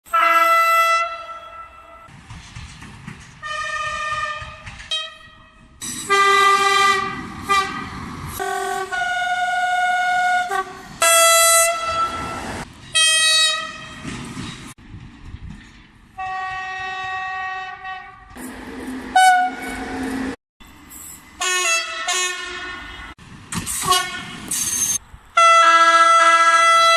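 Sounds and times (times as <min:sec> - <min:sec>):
train horn blasts: 0:00.1 - 0:02.1, 0:03.4 - 0:07.8, 0:08.4 - 0:14.0, 0:16.2 - 0:18.3, 0:19.1 - 0:20.1, 0:21.4 - 0:23.1, 0:23.8 - 0:24.4, 0:25.4 - 0:26.9
train rumble: 0:01.1 - 0:26.9.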